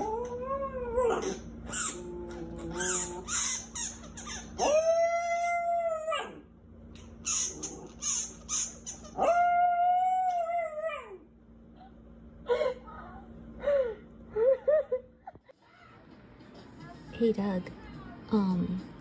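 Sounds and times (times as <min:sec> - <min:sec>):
dog howling: 0:00.0 - 0:03.7, 0:04.5 - 0:06.5, 0:09.1 - 0:11.3.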